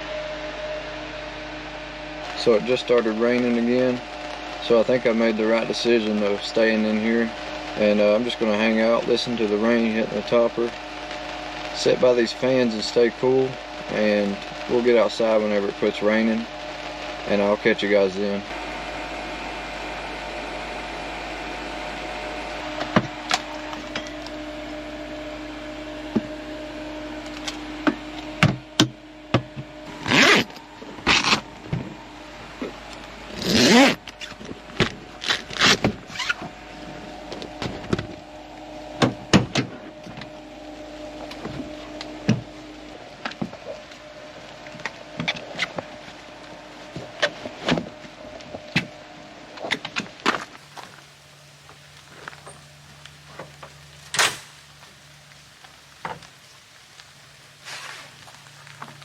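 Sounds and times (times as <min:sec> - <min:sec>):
rain hiss on fabric: 0:00.0 - 0:39.0, 0:50.6 - 0:59.0
fan humming: 0:00.0 - 0:59.0.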